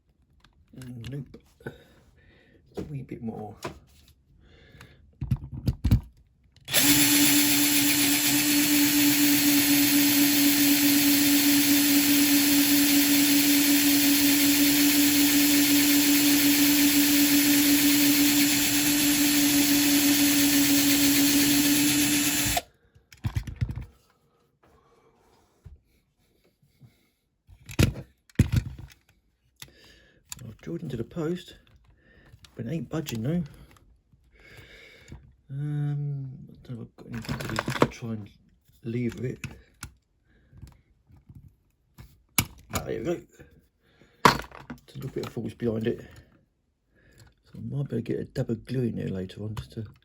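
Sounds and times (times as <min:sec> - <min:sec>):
power drill drilling into metal: 0:06.7 - 0:22.7.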